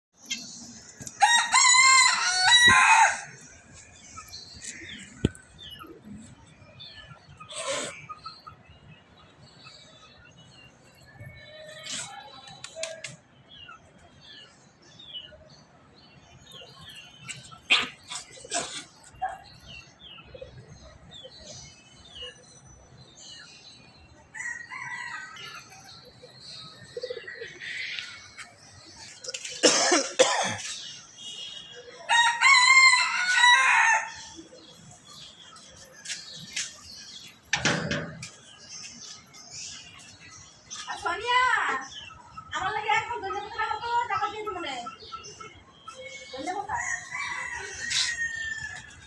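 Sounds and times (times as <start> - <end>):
rooster crowing: 1.2 - 3.3, 32.1 - 34.3, 46.8 - 49.0
small birds chirping: 2.2 - 32.1, 34.3 - 49.0.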